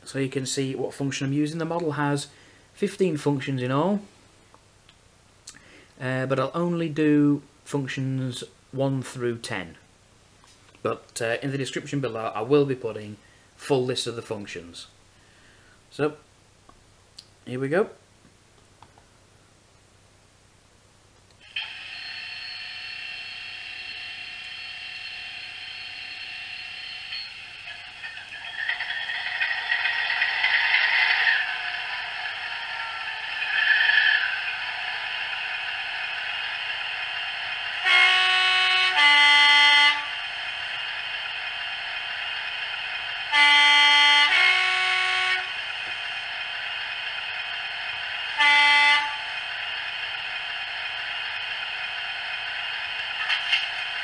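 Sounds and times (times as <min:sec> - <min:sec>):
two-tone locomotive horn: 0:23.8 - 0:29.8, 0:37.7 - 0:40.6, 0:43.2 - 0:45.9, 0:48.2 - 0:49.6
short horn note: 0:37.8 - 0:40.2, 0:43.3 - 0:45.6, 0:48.4 - 0:49.3.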